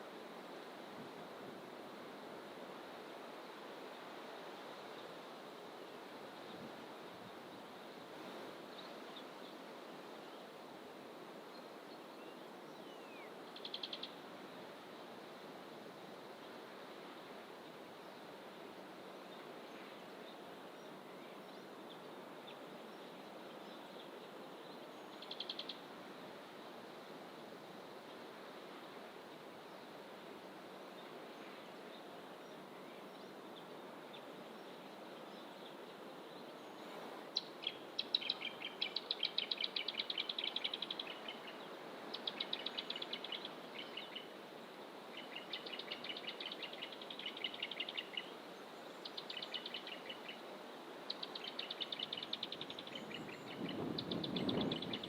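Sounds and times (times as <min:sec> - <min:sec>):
songbirds calling: 0:11.5 - 0:14.8, 0:19.2 - 0:26.8, 0:28.0 - 0:55.0.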